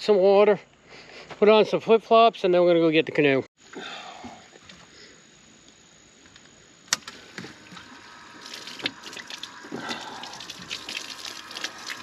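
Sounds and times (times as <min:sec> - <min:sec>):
water pouring and splashing: 0:07.3 - 0:12.0.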